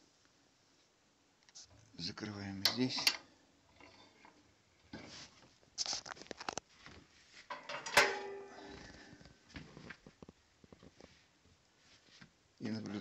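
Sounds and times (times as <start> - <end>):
stove door metal clanks: 2.6 - 4.4, 7.5 - 8.8.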